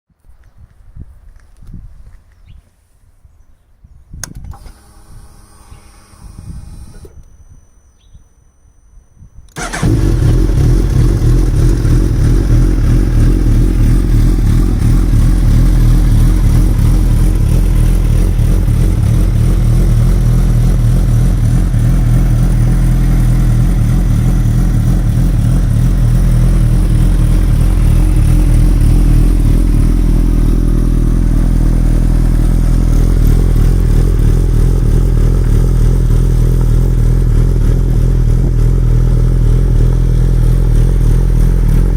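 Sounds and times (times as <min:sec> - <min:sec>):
motorcycle engine idling: 0:09.6 - 0:41.9.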